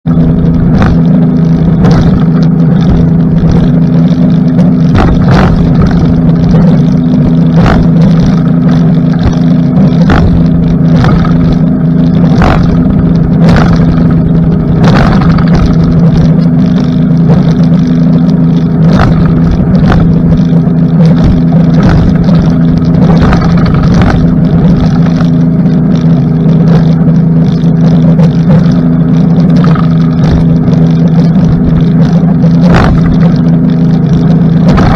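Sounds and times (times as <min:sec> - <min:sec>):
outboard motor droning: 0:00.0 - 0:34.9
boat hull thumping on waves: 0:00.5 - 0:16.4, 0:18.8 - 0:25.4, 0:32.5 - 0:33.6.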